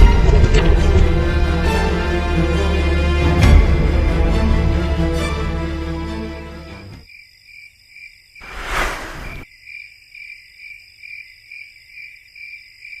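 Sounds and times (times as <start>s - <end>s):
loud rushing noise: 8.4s - 9.4s.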